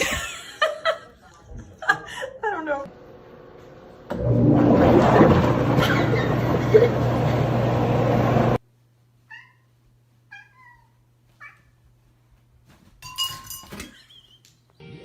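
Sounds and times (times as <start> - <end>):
cat meowing: 9.3 - 9.7, 10.3 - 11.8.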